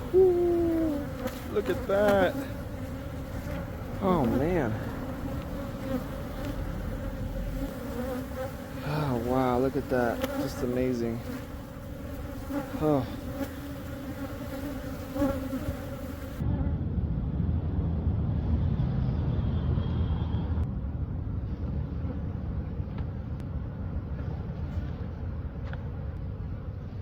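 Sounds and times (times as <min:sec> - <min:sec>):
honey bees buzzing: 0:00.0 - 0:16.5.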